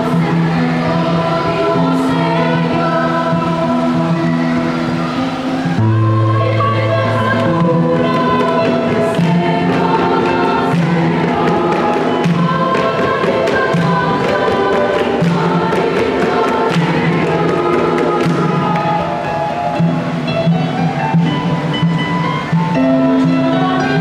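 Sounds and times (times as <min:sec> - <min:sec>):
children's choir singing a carol: 0:00.0 - 0:24.0.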